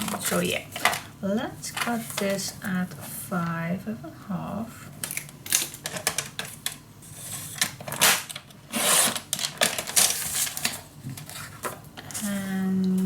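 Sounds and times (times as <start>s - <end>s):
paper rustling: 0.0s - 1.1s, 1.7s - 2.5s, 4.8s - 12.6s.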